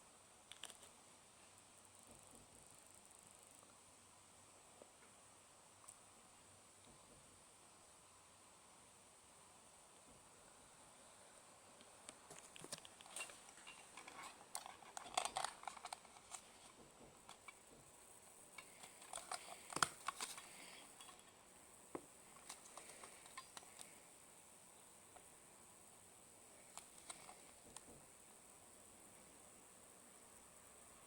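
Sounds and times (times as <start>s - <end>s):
faint steady high hiss: 0.0s - 31.0s
clicks and rustles of handled objects: 12.0s - 24.0s, 26.7s - 28.0s.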